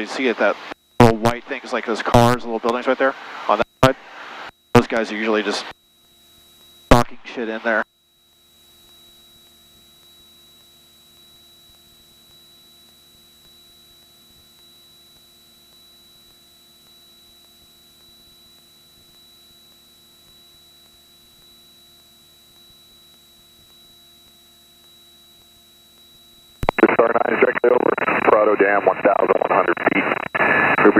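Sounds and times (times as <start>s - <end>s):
thin high whine: 0.0s - 30.9s
aircraft cabin drone: 26.5s - 30.9s.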